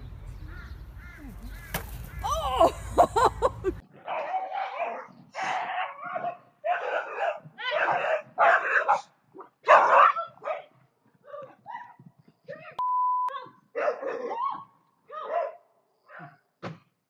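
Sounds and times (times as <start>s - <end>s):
dog barking and yelping: 4.0s - 12.0s, 13.8s - 16.3s
electronic beep: 12.8s - 13.3s.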